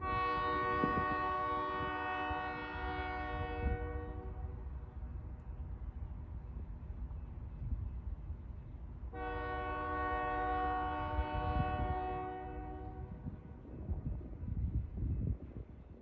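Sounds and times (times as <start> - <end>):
locomotive air horn blast: 0.0 - 4.6, 9.1 - 13.2
low rumble of passing train: 0.0 - 16.0.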